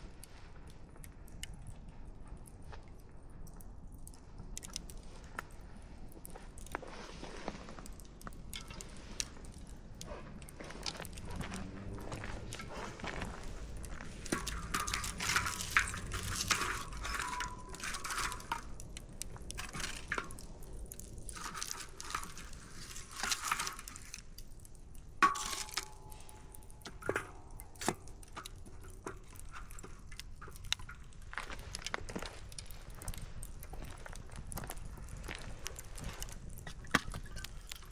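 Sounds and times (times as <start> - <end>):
campfire crackling and popping: 0.0 - 37.9.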